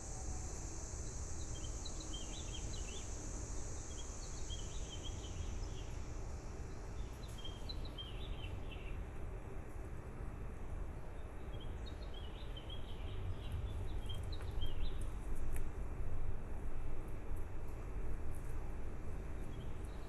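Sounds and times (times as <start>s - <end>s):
low rumble and hiss: 0.0s - 20.0s
small birds chirping: 0.9s - 9.1s, 11.1s - 15.3s.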